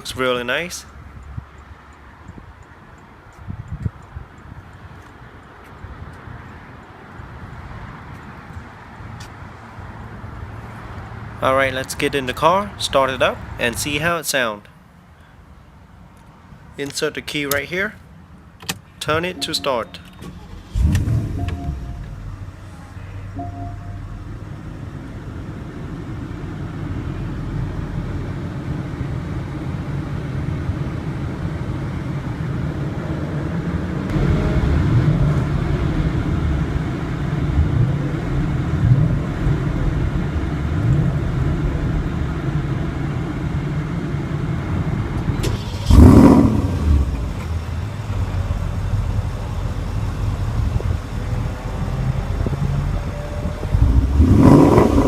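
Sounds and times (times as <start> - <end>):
car engine idling and revving: 20.1 - 55.0.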